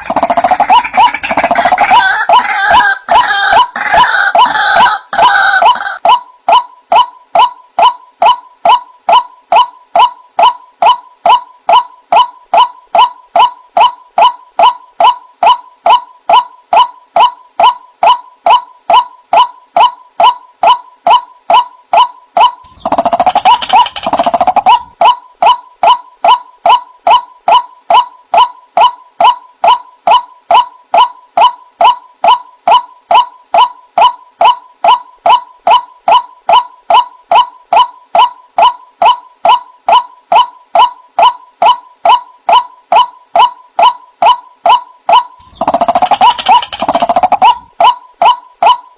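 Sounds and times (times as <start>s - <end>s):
waterhen calling: 0.0s - 10.6s
harsh overlapping bird calls: 0.0s - 48.9s.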